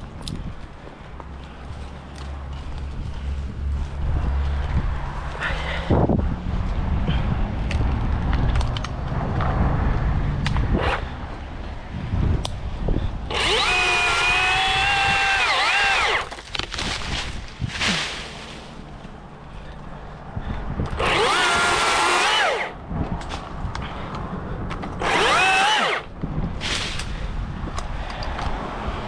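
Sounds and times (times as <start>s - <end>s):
electric chainsaw motor whine: 13.3s - 16.3s, 20.9s - 22.8s, 25.0s - 26.1s.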